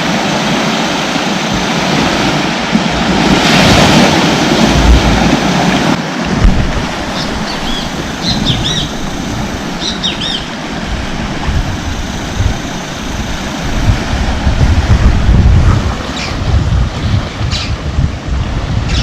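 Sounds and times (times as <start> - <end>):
sea surf: 0.0 - 19.0
wind on microphone: 0.0 - 19.0
bird chirping: 7.1 - 10.6.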